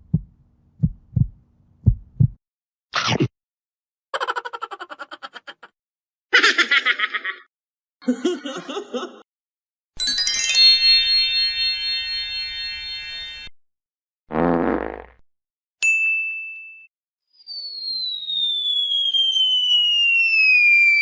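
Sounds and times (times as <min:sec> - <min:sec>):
shimmering chime: 0:10.0 - 0:13.5.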